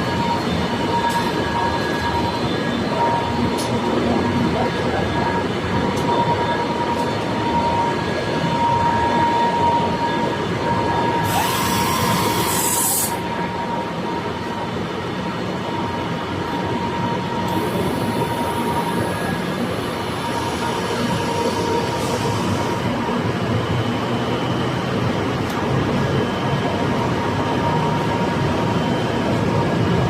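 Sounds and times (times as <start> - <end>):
thin steady whine: 0.0 - 30.0
machinery running: 15.6 - 30.0.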